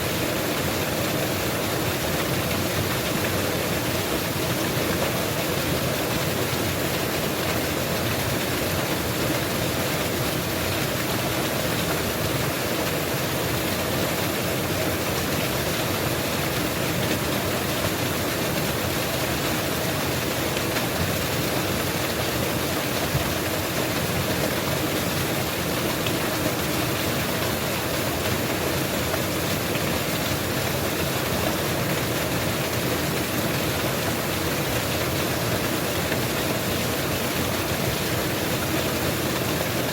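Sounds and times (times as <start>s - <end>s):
waterfall pouring: 0.0s - 39.9s.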